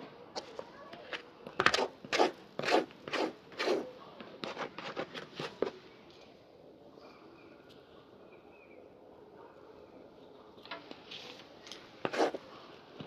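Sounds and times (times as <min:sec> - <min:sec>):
cloth rubbing on leather shoe: 0:01.7 - 0:03.9, 0:12.1 - 0:12.4.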